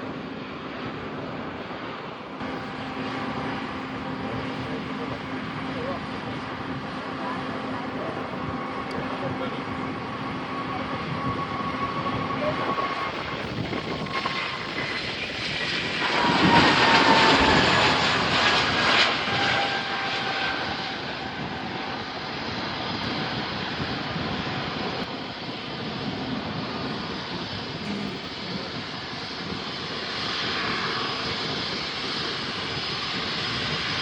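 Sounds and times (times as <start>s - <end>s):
airliner engines passing: 0.0s - 34.0s.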